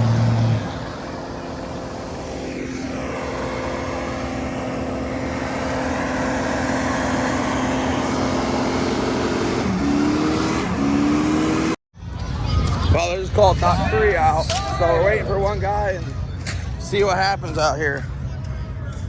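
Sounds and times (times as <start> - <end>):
vehicle engine at high revs: 0.0 - 11.8.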